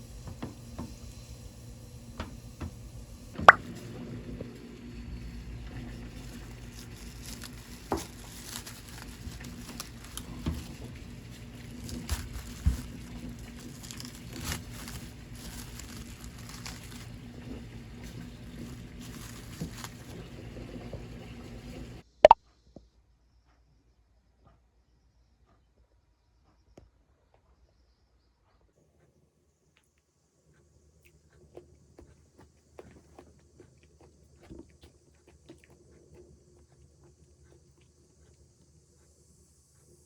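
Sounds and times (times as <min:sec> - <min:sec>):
steady low hum: 0:00.0 - 0:22.1.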